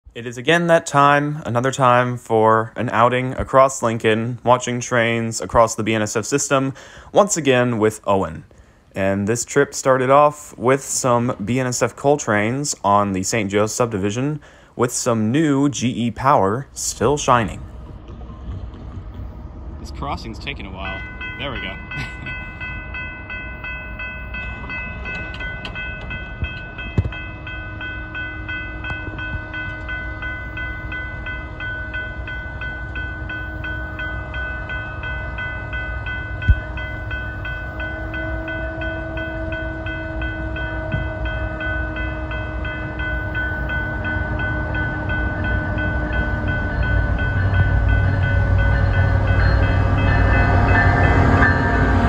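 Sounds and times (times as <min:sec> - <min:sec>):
diesel train approaching: 0:00.0 - 0:52.0
train horn chord: 0:27.3 - 0:52.0.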